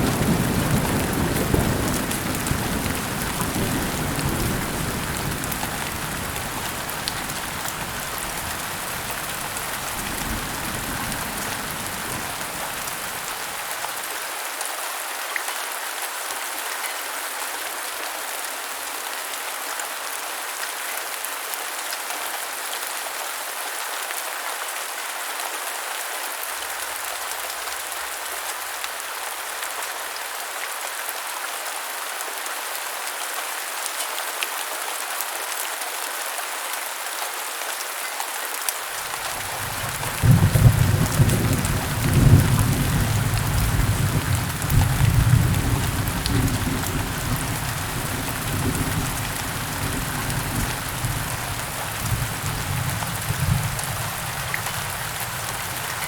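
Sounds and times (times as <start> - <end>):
heavy rain falling: 0.0 - 15.8, 38.8 - 56.0
thunder rumble: 39.2 - 56.0.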